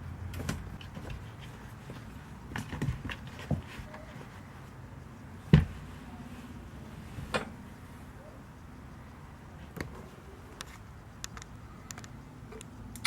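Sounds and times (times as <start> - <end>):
light knocks and bumps: 0.3 - 4.5, 5.4 - 5.9.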